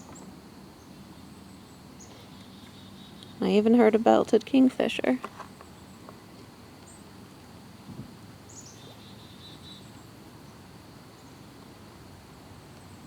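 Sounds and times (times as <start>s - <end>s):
faint high bird chirps: 8.5s - 10.0s.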